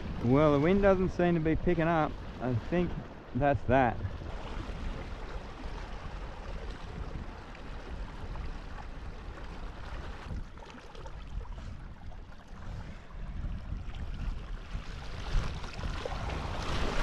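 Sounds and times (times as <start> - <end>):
low wind rumble on microphone: 0.0 - 17.0
swish of water: 4.2 - 17.0.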